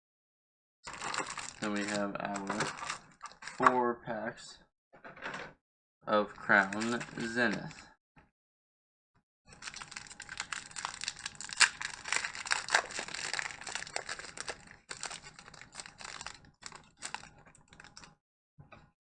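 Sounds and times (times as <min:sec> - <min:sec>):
foil wrapper crinkling: 0:00.9 - 0:03.7, 0:06.4 - 0:07.8, 0:09.5 - 0:18.1.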